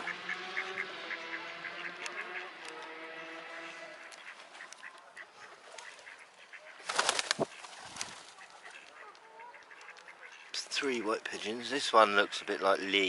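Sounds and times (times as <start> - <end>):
waterfowl honking call: 0.0 - 13.0
wing flaps: 5.6 - 9.0.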